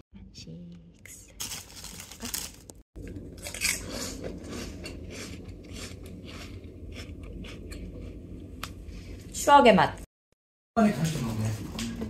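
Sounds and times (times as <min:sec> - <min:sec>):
person crunching snack: 0:01.4 - 0:02.8.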